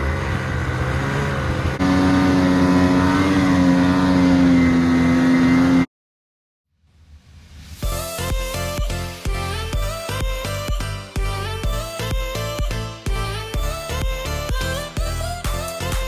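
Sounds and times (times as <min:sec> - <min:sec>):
snowmobile engine running: 0:00.0 - 0:05.9.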